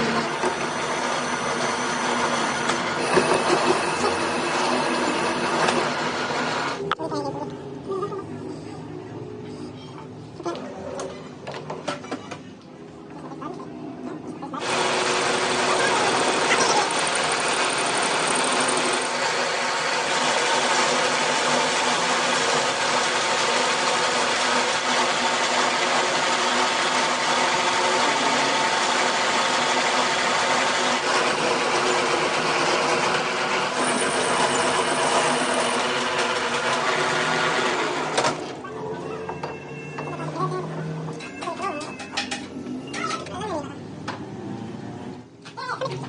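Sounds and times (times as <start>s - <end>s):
machine motor whirring: 0.0s - 6.8s, 14.6s - 38.6s.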